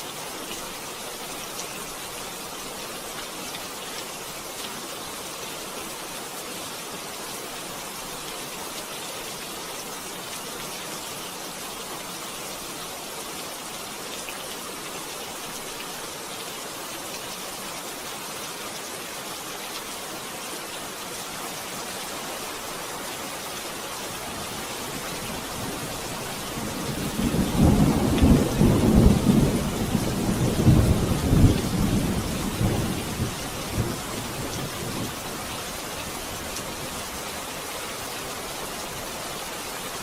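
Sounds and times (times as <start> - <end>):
rain hissing: 13.8 - 40.0.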